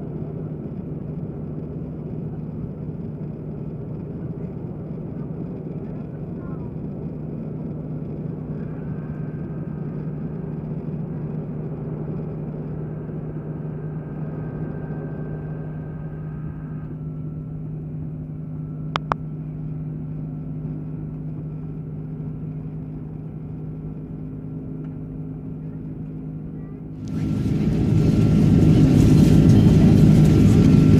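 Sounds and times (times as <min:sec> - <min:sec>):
airliner cabin drone: 0:00.0 - 0:30.9
faint high whine: 0:08.1 - 0:22.4
brief clicks: 0:19.0 - 0:19.2.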